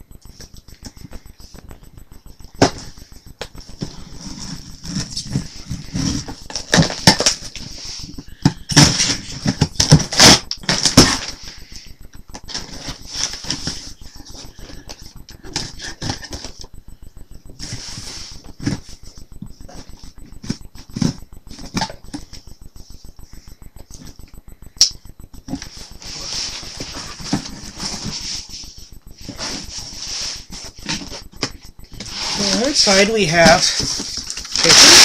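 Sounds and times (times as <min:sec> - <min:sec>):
cardboard tearing and crinkling: 0:08.8 - 0:11.4, 0:32.0 - 0:35.0
cardboard package scraping: 0:32.0 - 0:35.0.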